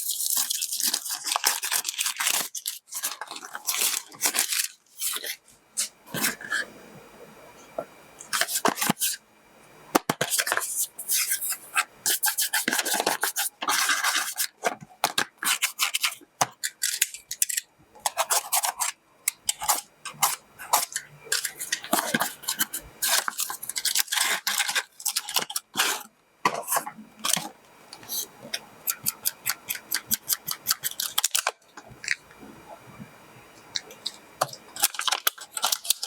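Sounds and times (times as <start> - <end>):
packaging rustling and crinkling: 0.0 - 6.4, 19.6 - 28.2, 33.7 - 36.0.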